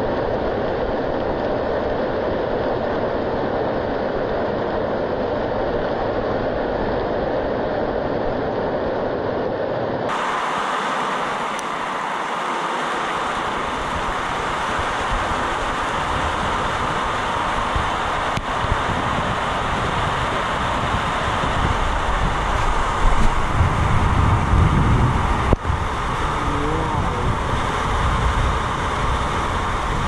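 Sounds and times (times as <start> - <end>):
heavy rain roaring: 10.1 - 30.0
low rumble: 18.4 - 30.0.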